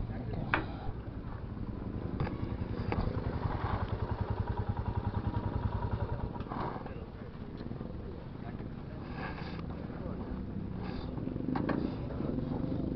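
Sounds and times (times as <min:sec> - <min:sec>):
motorcycle engine running: 0:01.0 - 0:07.5.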